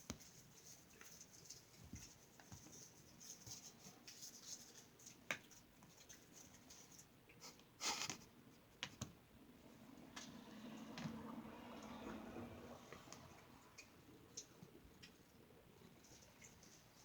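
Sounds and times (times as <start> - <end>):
scratchy rustle: 0.0 - 7.1
kittens scratching: 0.0 - 9.2
light patter of paws: 0.0 - 9.2, 10.8 - 17.0.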